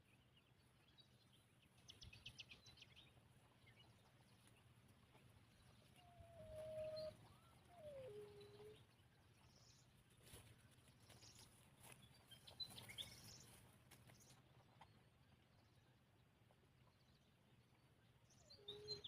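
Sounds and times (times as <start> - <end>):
faint bird calls: 5.6 - 9.5, 18.4 - 19.0.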